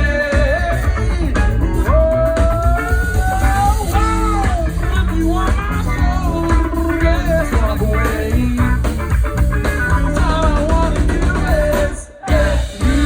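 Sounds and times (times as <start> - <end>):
electric guitar bending notes: 0.0 - 13.0
live rock band playing: 0.0 - 13.0.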